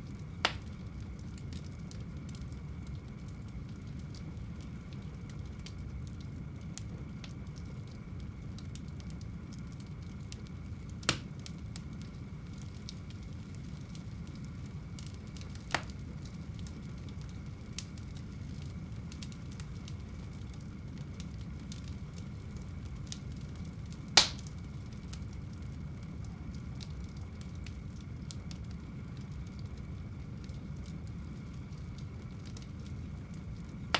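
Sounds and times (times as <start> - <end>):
faint fire crackling: 0.0 - 33.9
fire flames rumbling: 0.0 - 33.9
sharp fire pops: 0.4 - 0.9, 11.0 - 11.6, 15.0 - 16.4, 23.1 - 25.2.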